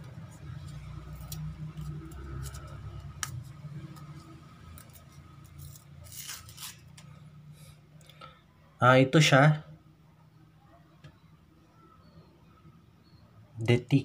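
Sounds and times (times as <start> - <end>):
scissors cutting plastic packaging: 0.4 - 7.1
plastic wrap crinkling: 4.0 - 7.1.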